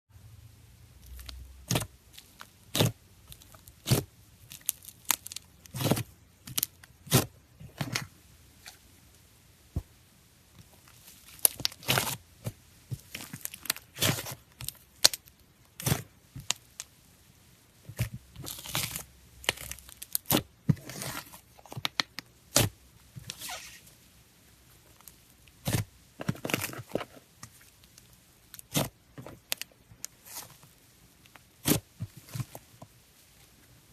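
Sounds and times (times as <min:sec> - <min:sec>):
crackly tearing slime: 0:01.0 - 0:08.0, 0:11.2 - 0:16.9, 0:18.0 - 0:23.7, 0:31.3 - 0:32.6.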